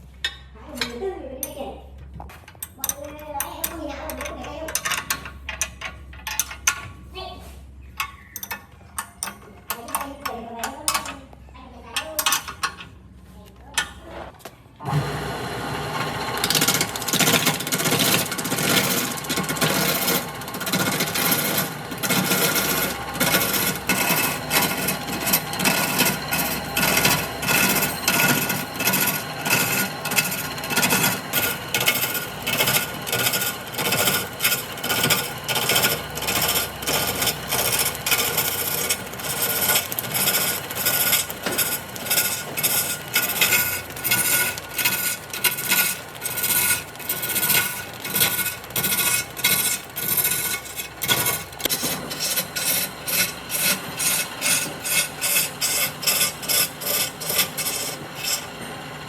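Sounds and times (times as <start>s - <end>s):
wood lathe running: 14.8s - 59.0s
turning tool cutting wood: 14.9s - 59.0s.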